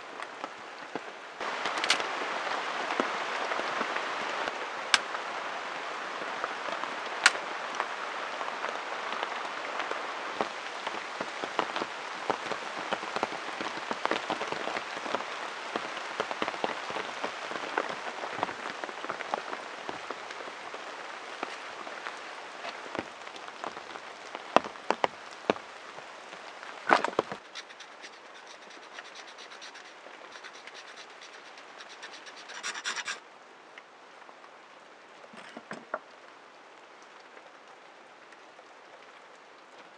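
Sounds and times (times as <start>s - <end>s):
rain pattering: 0.0s - 35.3s, 36.0s - 39.9s
rapid scratching: 1.7s - 2.0s, 27.4s - 33.2s.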